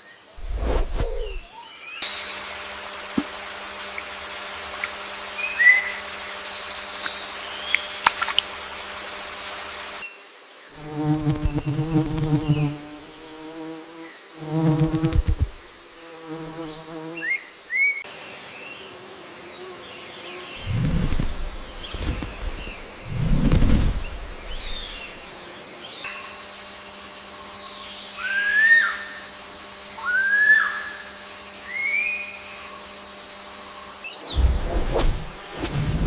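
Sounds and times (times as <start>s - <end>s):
loud insect-like buzz: 0.0s - 36.0s
low rumbling: 0.4s - 1.5s, 20.6s - 25.2s, 34.4s - 36.0s
steady hiss: 0.4s - 16.8s, 20.5s - 25.4s, 33.6s - 36.0s.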